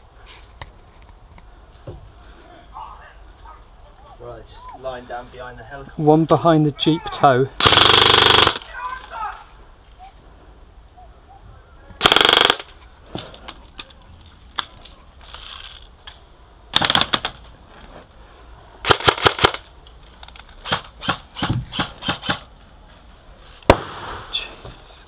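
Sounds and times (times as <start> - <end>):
airsoft gun firing: 7.6 - 8.6, 12.0 - 12.7, 16.7 - 17.4, 18.8 - 19.6, 20.6 - 22.4, 23.7 - 24.3.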